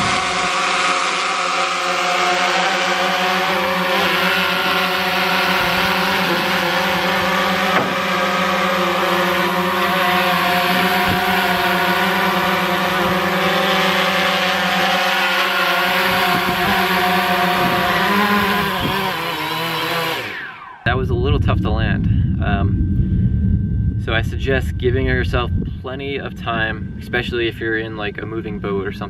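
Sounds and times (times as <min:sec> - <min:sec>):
drone propellers buzzing: 0:00.0 - 0:29.0
brief knock: 0:07.7 - 0:08.0.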